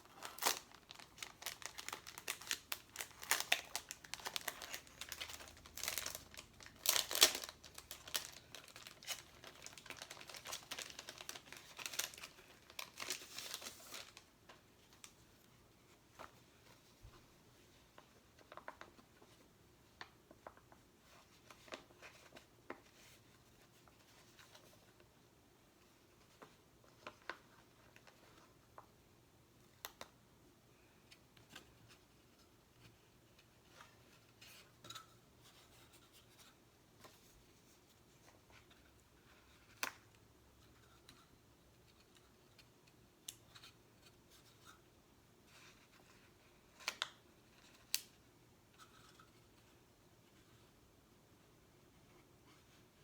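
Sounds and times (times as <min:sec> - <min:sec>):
sticker sheets crinkling: 0:00.0 - 0:14.3.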